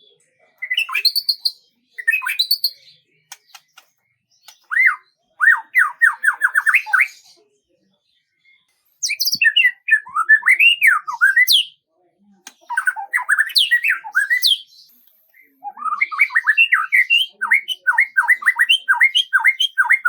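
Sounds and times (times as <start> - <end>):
songbird singing: 0.0 - 20.0
faint clicks: 3.3 - 4.7.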